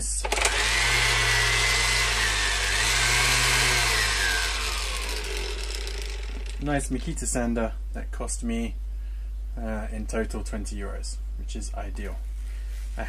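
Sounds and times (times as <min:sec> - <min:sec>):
orbital sander motor whine: 0:00.2 - 0:06.8.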